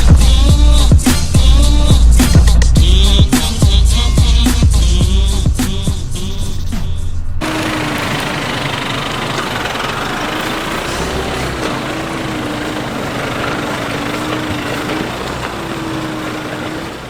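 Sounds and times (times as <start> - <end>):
vehicle engine and tyre noise: 7.4 - 17.0.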